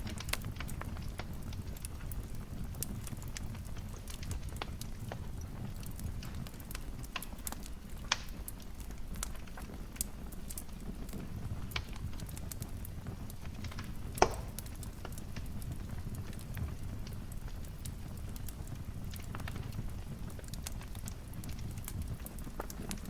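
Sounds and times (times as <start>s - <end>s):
wood fire crackling: 0.0s - 23.0s
loud fire pop: 13.6s - 15.1s.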